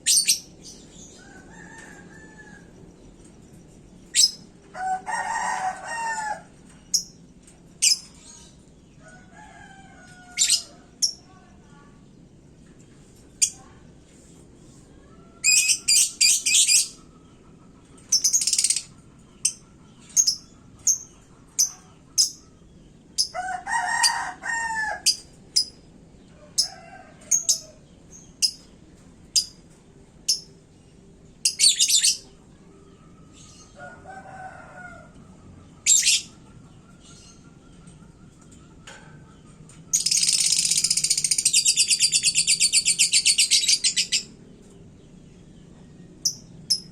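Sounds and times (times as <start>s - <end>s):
lovebird chirping and trilling: 0.0s - 1.2s, 4.0s - 4.5s, 7.8s - 8.5s, 15.4s - 17.1s, 18.1s - 22.6s, 31.4s - 32.3s, 35.8s - 37.6s, 39.9s - 44.3s, 46.2s - 46.9s.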